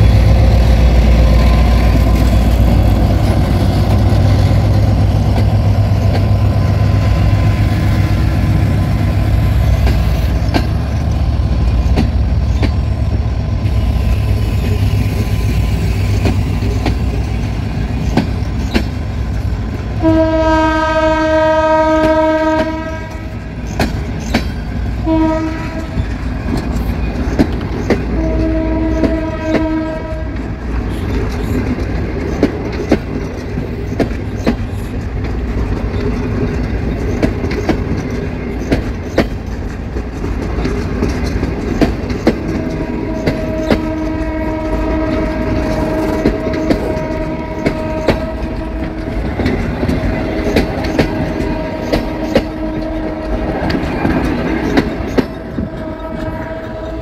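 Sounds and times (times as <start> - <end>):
train coaches rumbling past: 0.0 - 57.0
locomotive horn blasts: 20.0 - 23.4, 25.0 - 26.0, 28.1 - 31.0, 42.5 - 53.8, 55.5 - 57.0.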